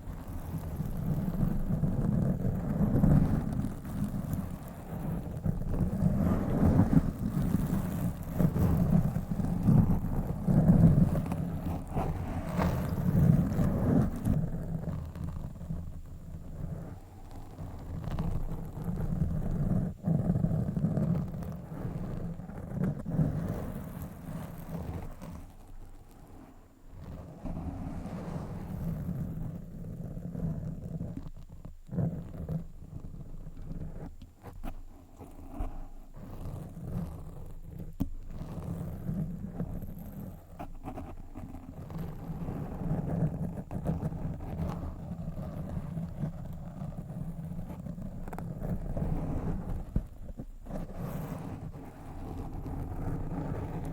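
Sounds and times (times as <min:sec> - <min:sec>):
fingers scratching a microphone: 0:00.1 - 0:53.9.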